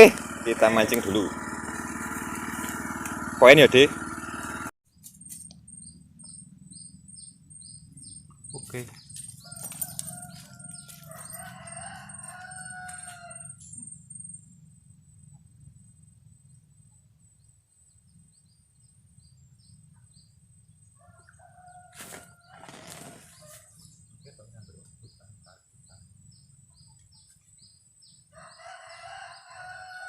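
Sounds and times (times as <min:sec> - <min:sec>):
low steady rumble: 0:00.0 - 0:04.7
rooster crowing: 0:09.4 - 0:13.8, 0:21.0 - 0:23.7, 0:28.3 - 0:30.0.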